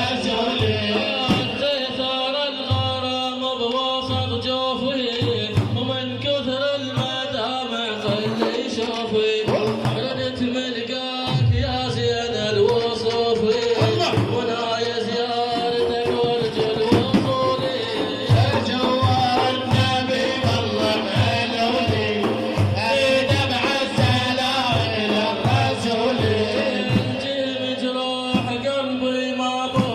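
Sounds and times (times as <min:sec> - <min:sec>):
hand-drum strokes: 0:00.0 - 0:10.6, 0:11.2 - 0:27.3.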